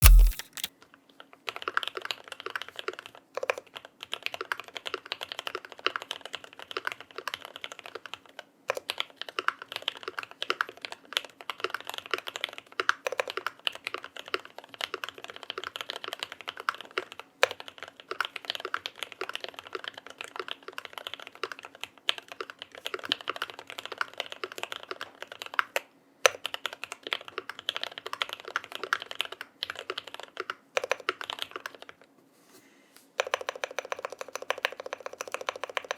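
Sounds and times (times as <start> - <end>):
mechanical keyboard key clacks: 0.0 - 0.7, 33.2 - 35.9.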